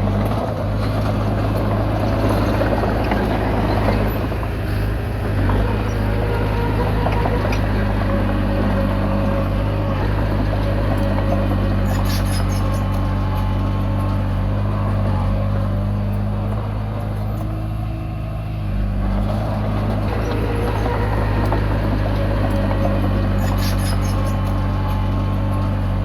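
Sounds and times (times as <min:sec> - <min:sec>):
diesel engine running under load: 0:00.0 - 0:26.0
metallic clanking of tracks: 0:00.1 - 0:14.4, 0:19.3 - 0:25.7.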